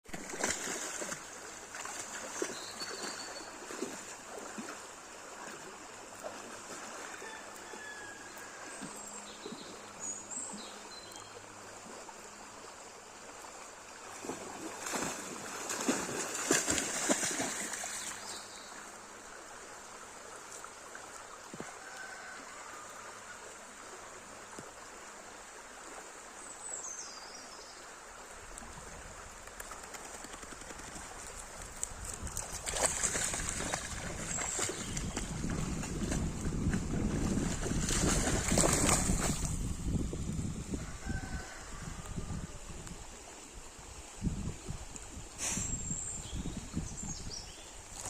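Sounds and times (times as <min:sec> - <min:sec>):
water splashing: 0:00.1 - 0:07.2, 0:14.0 - 0:18.3, 0:31.2 - 0:39.7
river water flowing: 0:00.1 - 0:46.1.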